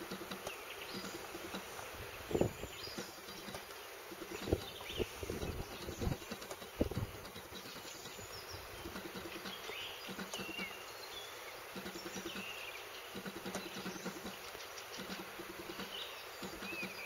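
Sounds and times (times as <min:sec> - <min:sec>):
soft low ticks: 0:00.0 - 0:01.9
open-field ambience: 0:00.0 - 0:17.0
small birds chirping: 0:00.0 - 0:17.0.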